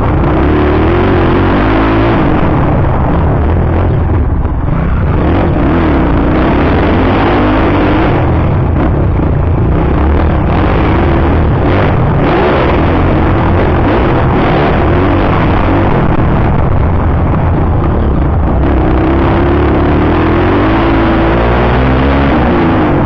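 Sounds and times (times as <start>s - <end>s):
constant heavy noise: 0.0s - 23.0s
motocross bike engine revving: 0.0s - 23.0s.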